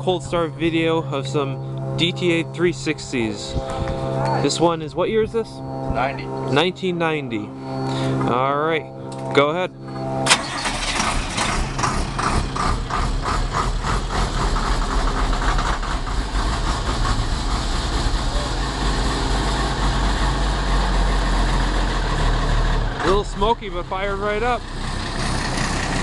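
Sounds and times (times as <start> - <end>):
diesel engine starting and idling: 10.2 - 26.0.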